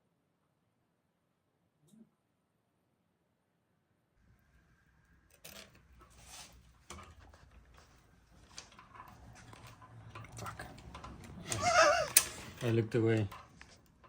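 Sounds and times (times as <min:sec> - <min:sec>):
metal bicycle parts clinking: 0:05.3 - 0:14.0.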